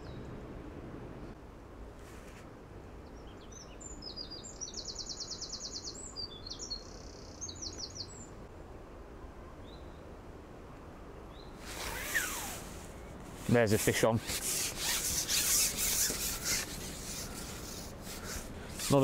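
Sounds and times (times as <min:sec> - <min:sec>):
songbird singing: 0:00.0 - 0:01.4, 0:02.9 - 0:08.8, 0:09.5 - 0:10.2, 0:10.8 - 0:13.2
low steady background noise: 0:00.0 - 0:19.0.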